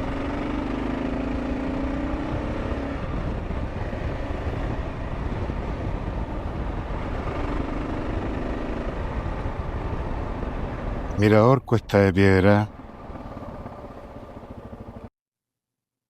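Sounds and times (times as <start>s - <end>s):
motorcycle engine: 0.0s - 11.2s, 12.7s - 15.1s
road rumble: 0.0s - 15.1s
wind noise: 1.9s - 11.3s.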